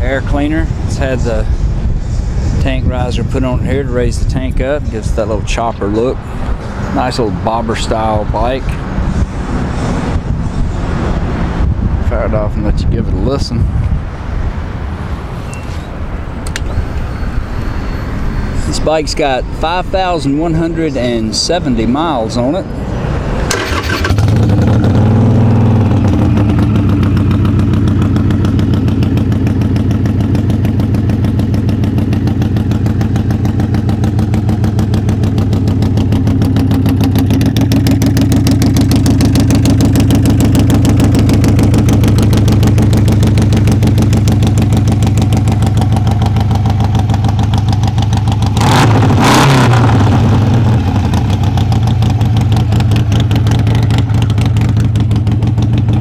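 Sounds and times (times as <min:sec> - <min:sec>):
motorcycle throttle rev: 0:23.1 - 0:56.0
motorcycle engine idling: 0:23.5 - 0:48.6, 0:49.9 - 0:56.0.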